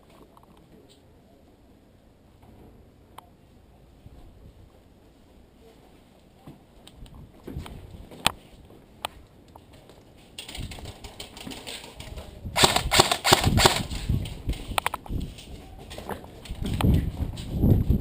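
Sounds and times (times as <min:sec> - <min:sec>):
airsoft guns firing: 0:12.6 - 0:14.1.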